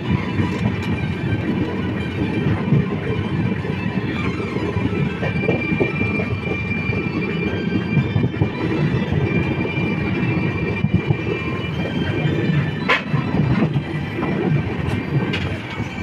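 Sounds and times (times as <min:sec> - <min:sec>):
wheels rumbling on rails: 0:00.0 - 0:16.0
high wheel squeal: 0:02.0 - 0:14.1.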